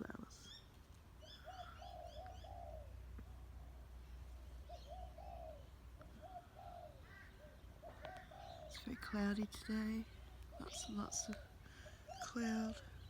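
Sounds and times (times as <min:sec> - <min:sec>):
dove cooing: 0:01.2 - 0:03.8, 0:04.6 - 0:13.0.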